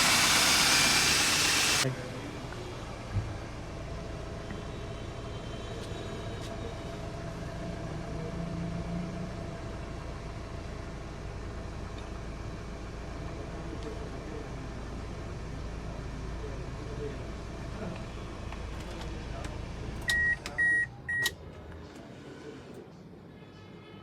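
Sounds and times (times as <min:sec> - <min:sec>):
car engine idling: 0:00.0 - 0:04.5.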